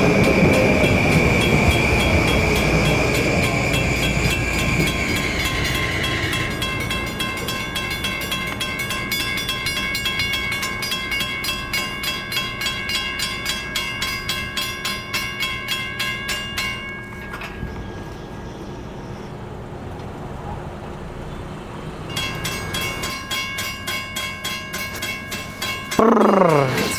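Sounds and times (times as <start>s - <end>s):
train wheels clicking on rails: 0.0s - 18.8s, 19.8s - 26.9s
high ringing tones: 0.0s - 19.3s.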